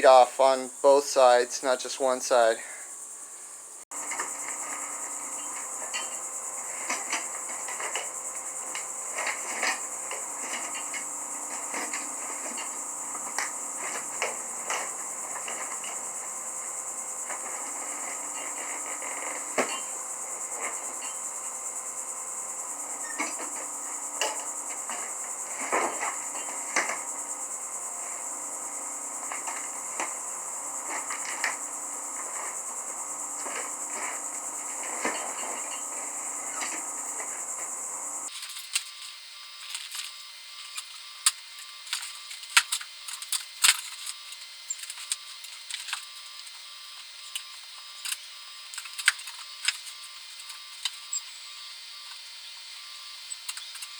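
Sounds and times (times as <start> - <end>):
high-pitched hiss: 0.0 - 53.9
tire tools clanking on wheel rim: 3.9 - 39.0, 39.6 - 51.4.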